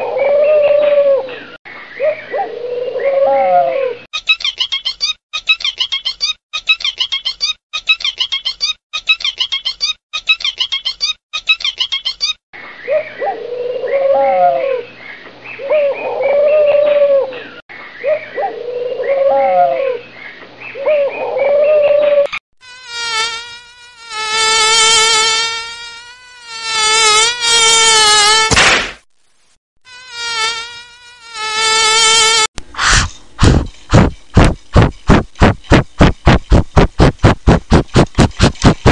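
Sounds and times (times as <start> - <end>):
insect-like buzzing: 22.6 - 28.6, 29.8 - 32.5.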